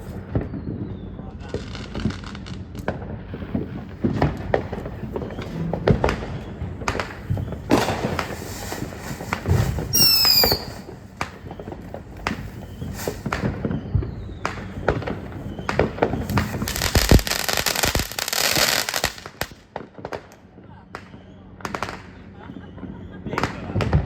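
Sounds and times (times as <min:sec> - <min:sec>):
firework bangs and pops: 0:00.0 - 0:24.0
firework crackling: 0:01.5 - 0:20.4
firework whistle falling in pitch: 0:09.8 - 0:11.7.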